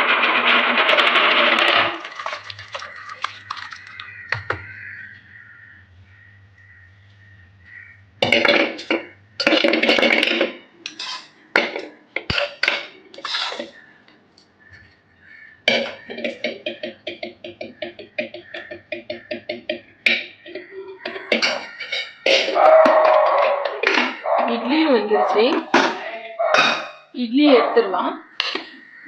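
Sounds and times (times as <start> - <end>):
metal pots clattering and scraping: 0.0 - 5.2, 8.2 - 13.9, 15.6 - 26.0, 26.6 - 27.0.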